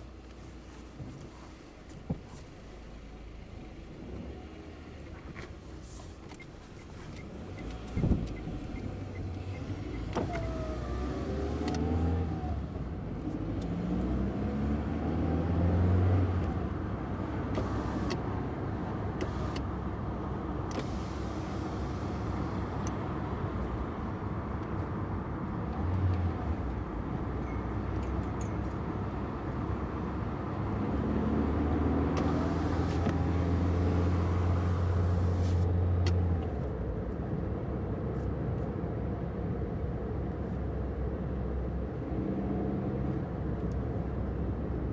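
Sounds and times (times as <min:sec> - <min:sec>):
car engine revving: 0:30.6 - 0:35.6.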